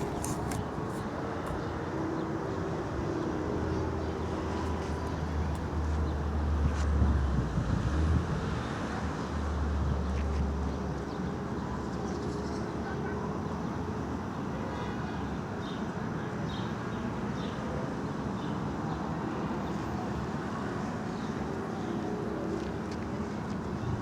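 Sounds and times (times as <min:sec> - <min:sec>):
distant traffic rumble: 0:00.0 - 0:12.6.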